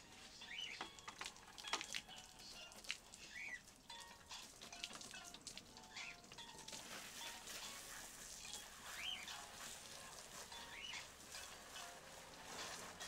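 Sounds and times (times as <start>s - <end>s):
faint bird chirps: 0.3s - 0.8s, 3.2s - 3.7s, 8.9s - 9.3s, 10.6s - 11.1s.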